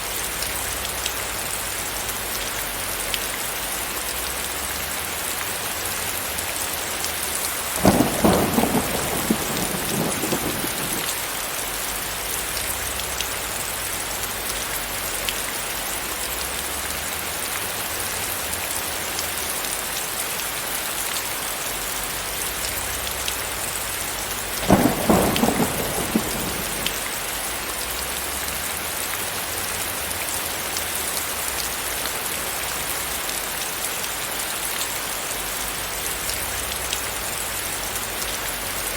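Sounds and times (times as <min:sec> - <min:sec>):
steady rain falling: 0:00.0 - 0:38.9
thunderclaps rumbling: 0:07.8 - 0:11.4, 0:24.6 - 0:27.4.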